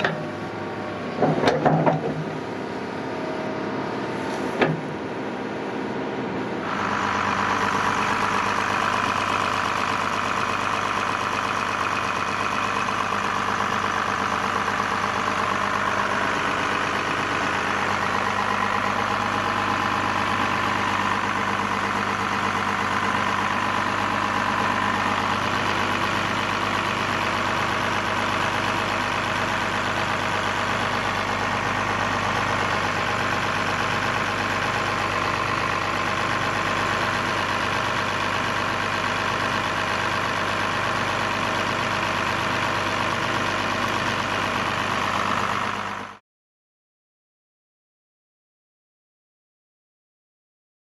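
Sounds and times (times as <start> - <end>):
excavator diesel engine running: 0.0 - 46.2.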